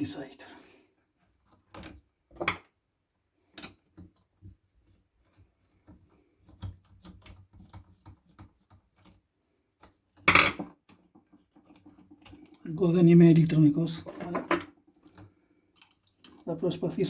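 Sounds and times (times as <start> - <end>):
small clicks and taps of handled parts: 3.5 - 9.2, 9.8 - 12.6, 14.1 - 16.4.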